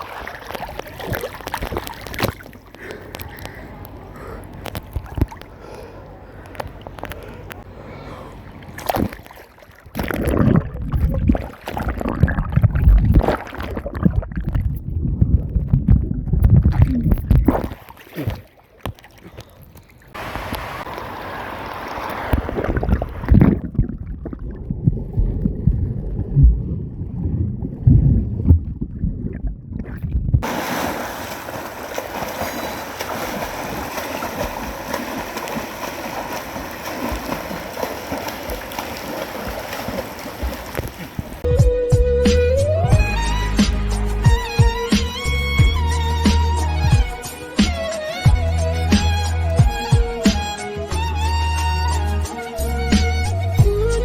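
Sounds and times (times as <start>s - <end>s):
water rushing: 0.0s - 2.8s, 20.1s - 26.4s, 30.4s - 41.5s
heavy low splashes: 0.0s - 19.3s, 20.1s - 41.5s
pool water sloshing and gurgling: 0.0s - 41.5s.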